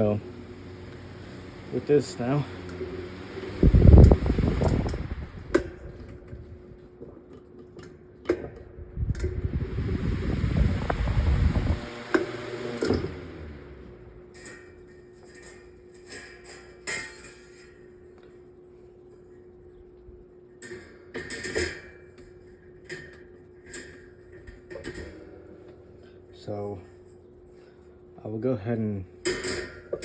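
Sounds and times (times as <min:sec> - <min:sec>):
table fan air rumble: 0:00.0 - 0:16.8
steady hum: 0:00.0 - 0:30.0.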